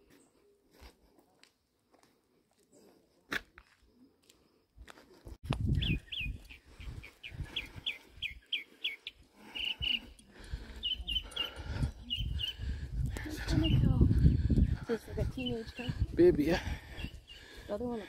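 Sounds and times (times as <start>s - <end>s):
songbird chirping: 5.6s - 16.1s, 16.8s - 18.0s.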